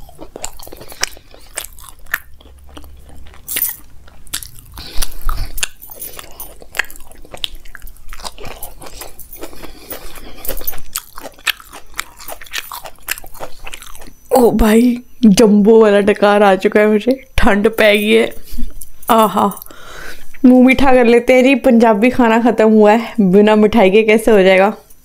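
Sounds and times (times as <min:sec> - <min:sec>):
person chewing and crunching: 0:00.0 - 0:14.5.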